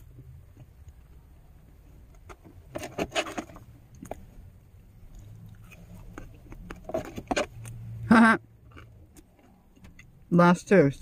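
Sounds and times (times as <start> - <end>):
crunchy chewing of snacks: 5.0 - 7.8, 8.6 - 10.2.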